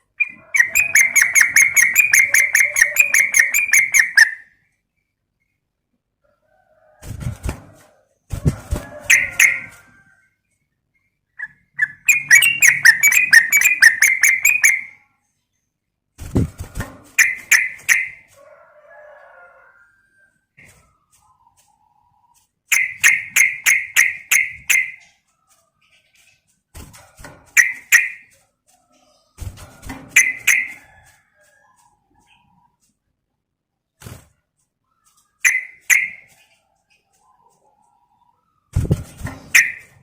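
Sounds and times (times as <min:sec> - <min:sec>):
bird chattering calls: 0:00.2 - 0:04.4, 0:11.4 - 0:14.9.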